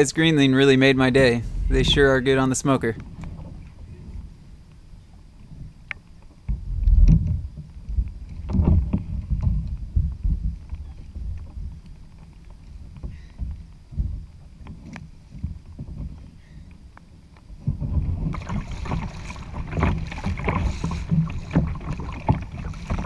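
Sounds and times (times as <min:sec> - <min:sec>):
water against hull: 0:00.0 - 0:23.0
wind on microphone: 0:01.2 - 0:04.5, 0:06.5 - 0:12.2, 0:17.6 - 0:23.0.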